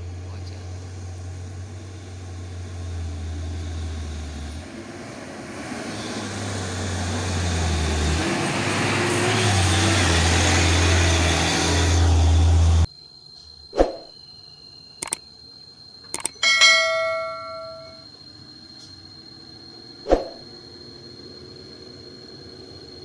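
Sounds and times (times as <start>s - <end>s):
diesel truck engine labouring: 0.0s - 12.9s.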